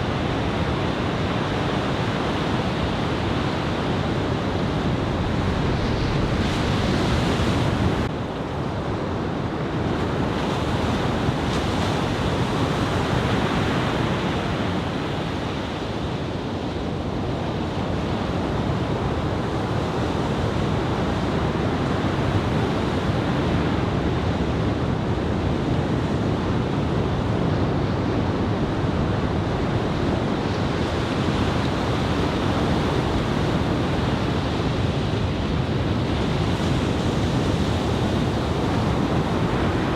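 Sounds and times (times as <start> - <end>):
ocean surf breaking: 2.8 - 8.1.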